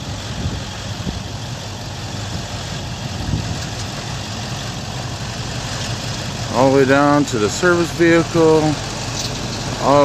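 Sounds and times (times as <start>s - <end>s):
broad steady noise: 0.0s - 10.0s
vehicle engine idling: 0.0s - 10.0s.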